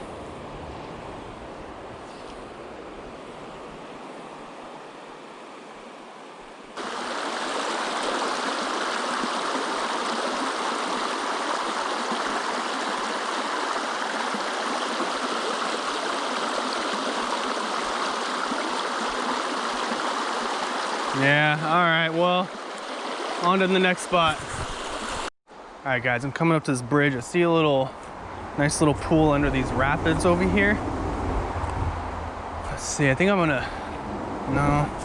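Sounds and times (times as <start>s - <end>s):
creek rushing over rocks: 6.8s - 25.7s.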